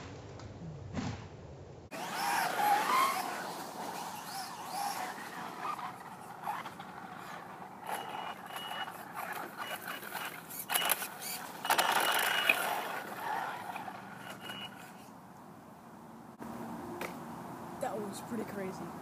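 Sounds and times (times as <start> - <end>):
tyre noise: 0.0 - 15.1
electric motor whining: 1.9 - 15.1.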